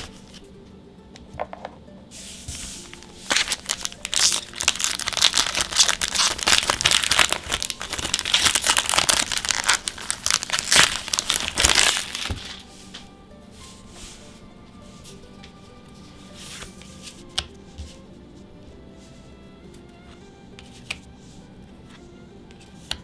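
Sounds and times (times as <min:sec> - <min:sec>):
wrapper crinkling and tearing: 0:03.0 - 0:12.7.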